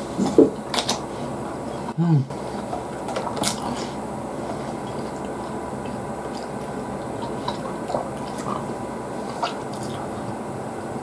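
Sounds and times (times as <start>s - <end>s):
faint chewing: 0.0s - 10.5s
low room hum: 0.0s - 11.0s
wet mouth clicks: 4.8s - 10.3s.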